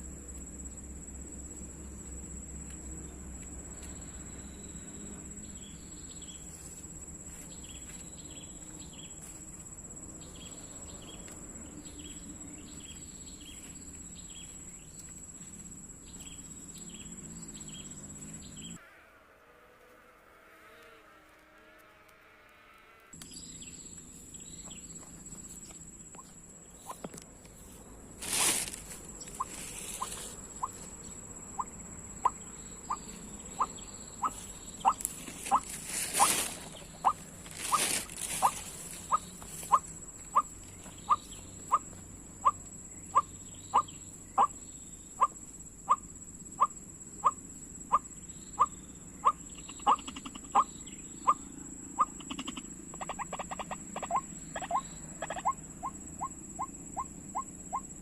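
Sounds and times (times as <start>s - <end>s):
loud rustling: 28.2s - 30.9s, 34.4s - 39.8s
high-pitched insect drone: 28.2s - 58.0s.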